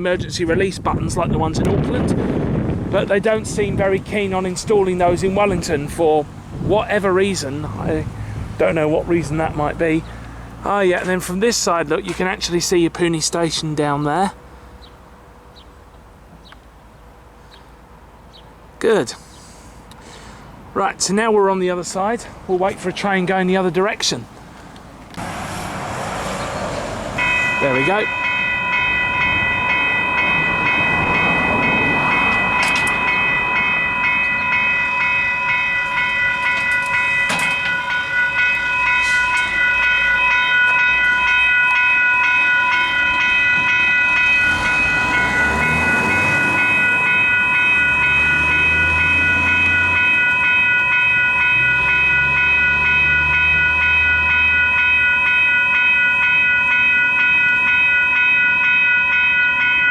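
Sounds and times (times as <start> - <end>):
level crossing bells ringing: 3.0 - 15.6, 26.1 - 59.9.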